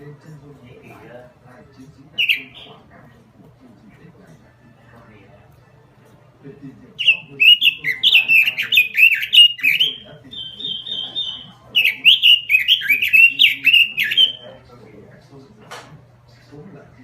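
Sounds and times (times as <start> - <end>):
bird warbling song: 2.2 - 3.0, 7.0 - 14.6
quick repeated high bird notes: 7.0 - 14.4.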